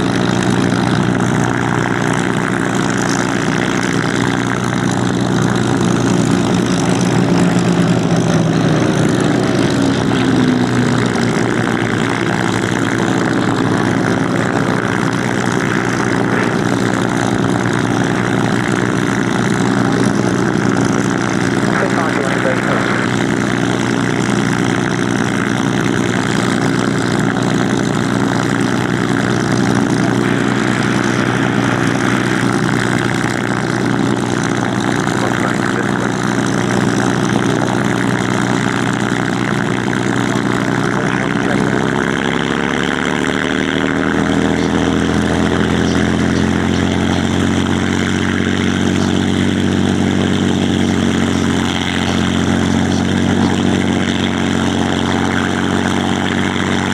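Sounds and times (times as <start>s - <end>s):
piston aircraft engines running: 0.0s - 56.9s.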